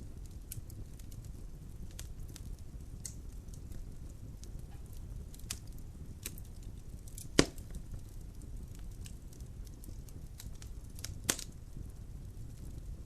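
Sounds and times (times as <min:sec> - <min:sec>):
fire crackling: 0:00.0 - 0:13.0
low rumble of fire: 0:00.0 - 0:13.0
wood pops: 0:07.4 - 0:07.7.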